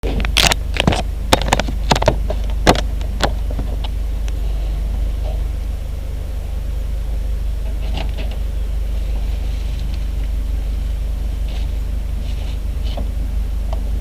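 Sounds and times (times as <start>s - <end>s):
sharp clicks and knocks: 0.0s - 4.4s
aircraft engine droning: 0.0s - 14.0s.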